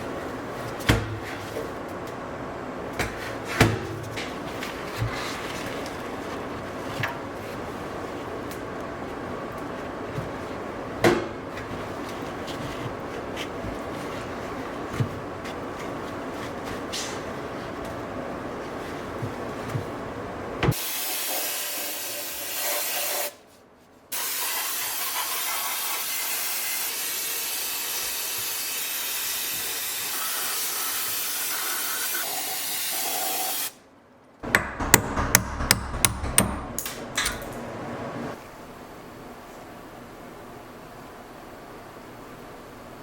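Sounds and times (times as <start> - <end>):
rapid sharp knocks: 34.4 - 37.1.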